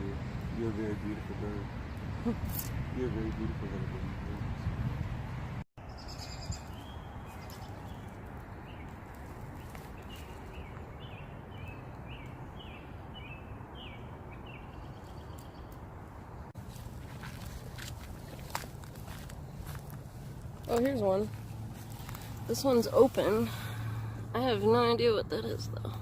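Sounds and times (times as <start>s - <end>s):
outdoor background noise: 0.0s - 26.0s
bird chirping: 5.8s - 16.0s.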